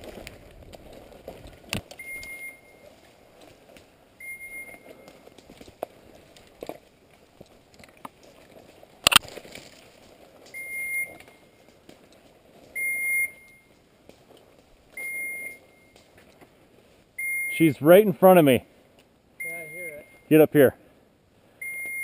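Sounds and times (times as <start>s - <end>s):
beeper collar short high beeps: 4.2s - 5.1s, 10.6s - 11.4s, 12.8s - 13.7s, 15.0s - 16.0s, 17.2s - 17.8s, 19.4s - 20.4s, 21.6s - 22.0s.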